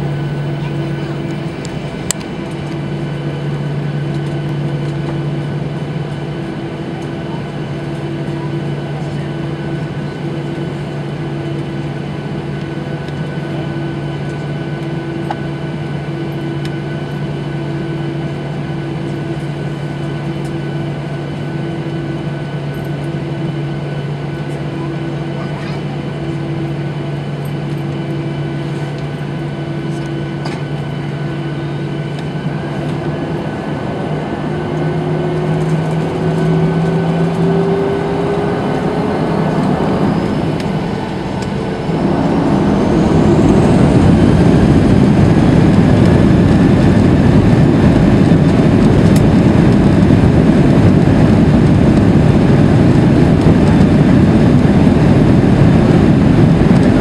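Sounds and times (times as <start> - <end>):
high whine: 0.0 - 8.8, 26.8 - 57.0
jet engines spooling up: 0.0 - 11.8, 27.9 - 57.0.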